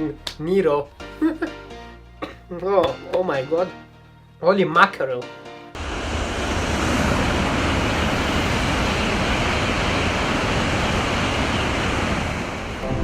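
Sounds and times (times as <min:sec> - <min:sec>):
train rushing on track: 0:05.8 - 0:13.0.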